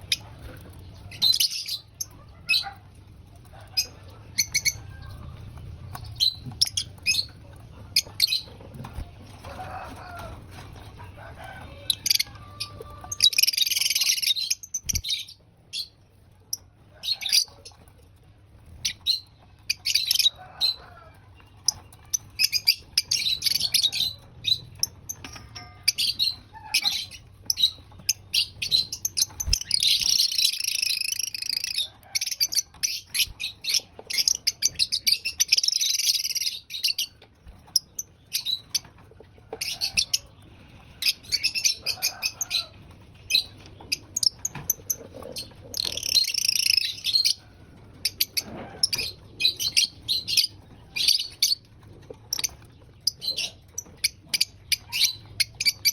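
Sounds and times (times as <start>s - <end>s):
lovebirds chirping and chattering: 0.0s - 55.9s.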